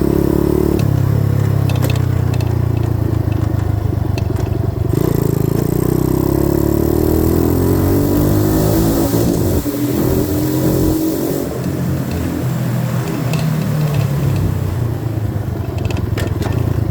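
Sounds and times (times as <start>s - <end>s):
dirt bike engine accelerating: 0.0s - 16.9s.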